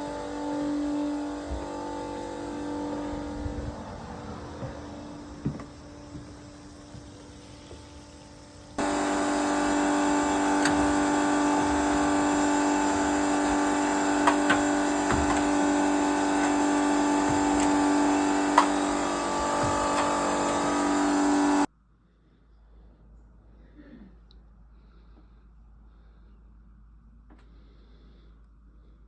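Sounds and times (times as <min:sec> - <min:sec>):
machine humming: 0:00.0 - 0:21.7.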